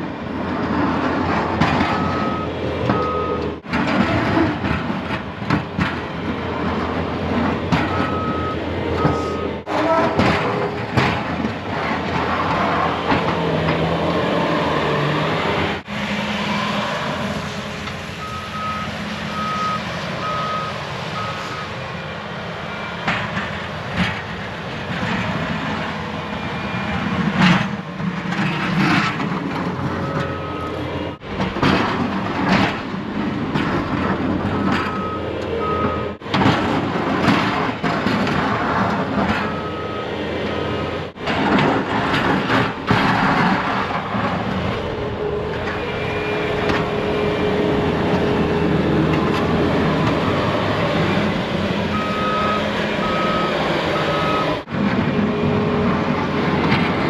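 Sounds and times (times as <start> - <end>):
truck engine running: 0.0 - 57.0
backup alarm beeping: 2.0 - 3.5, 7.9 - 9.6, 51.9 - 54.6.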